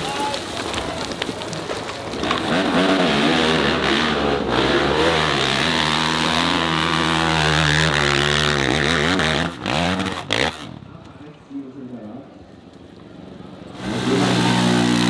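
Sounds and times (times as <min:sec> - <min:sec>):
dirt bike engine revving: 0:02.2 - 0:10.9, 0:13.7 - 0:15.0.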